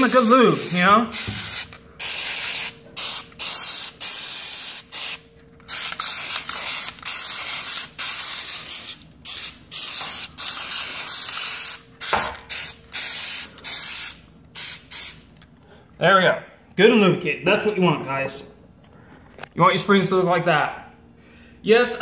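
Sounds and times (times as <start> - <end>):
aerosol spray can hissing: 0.0 - 15.2.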